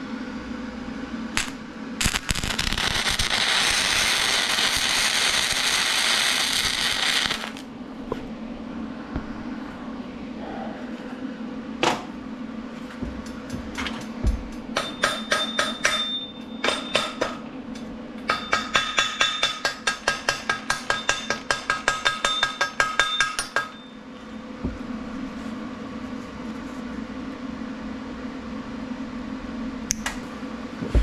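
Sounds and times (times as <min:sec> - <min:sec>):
hammer striking steel: 0:14.0 - 0:17.4, 0:18.2 - 0:24.0.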